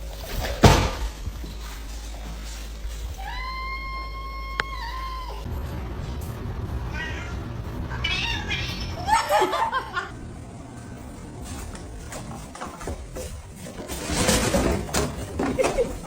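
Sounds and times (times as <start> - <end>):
cat meowing: 6.9 - 9.3.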